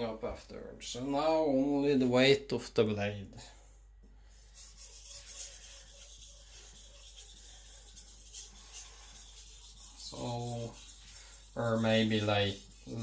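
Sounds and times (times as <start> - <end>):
knife scraping on whetstone: 4.6 - 13.0.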